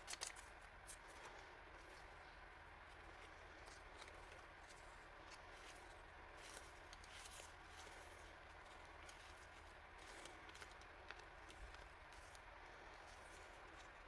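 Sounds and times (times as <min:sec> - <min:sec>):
low hum: 0:00.0 - 0:14.0
packaging rustling: 0:03.0 - 0:14.0.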